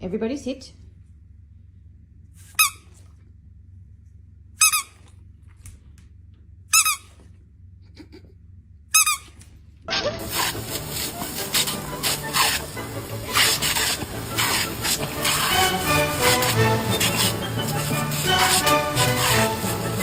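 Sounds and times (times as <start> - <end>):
short high-pitched squeak: 2.5 - 3.0, 4.6 - 5.0, 6.7 - 7.2, 9.0 - 9.4, 13.3 - 20.0
loud hissing rasping noise: 10.2 - 20.0.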